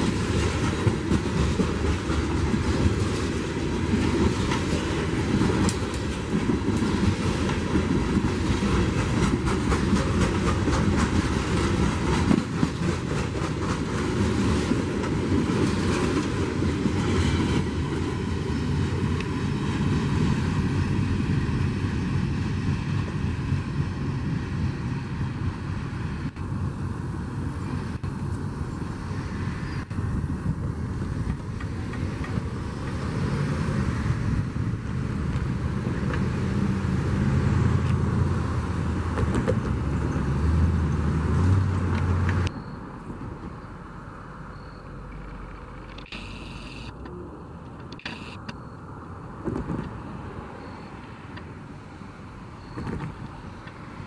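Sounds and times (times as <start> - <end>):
train wheels clicking on rails: 0.0 - 26.6, 29.8 - 43.6, 52.6 - 54.0.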